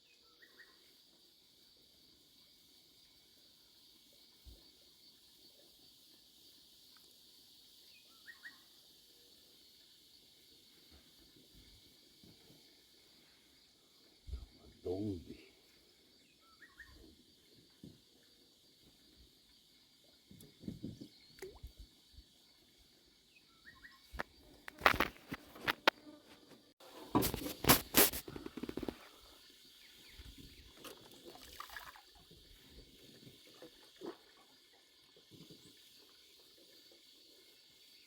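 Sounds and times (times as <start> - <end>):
high insect buzz: 23.8 - 30.6.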